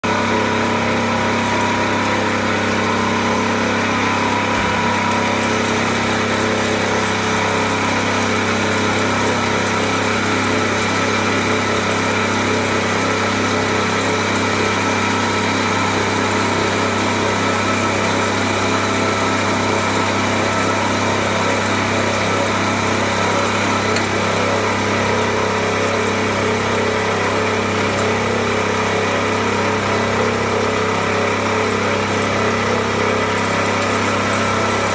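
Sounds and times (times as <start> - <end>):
coffee grinder running: 0.0 - 34.9.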